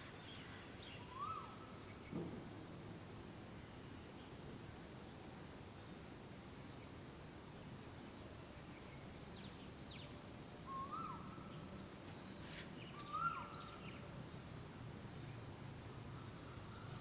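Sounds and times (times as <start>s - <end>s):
thin high bird chirps: 12.3s - 13.9s
bird short rising calls: 12.5s - 13.8s.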